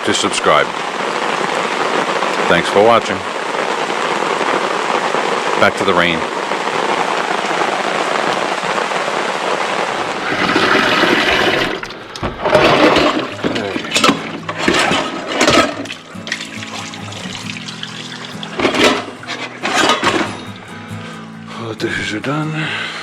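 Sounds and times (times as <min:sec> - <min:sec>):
steady rain: 0:00.0 - 0:23.0
water sloshing and splashing: 0:10.1 - 0:20.6
dishes clinking: 0:12.4 - 0:20.6
background music: 0:13.3 - 0:23.0.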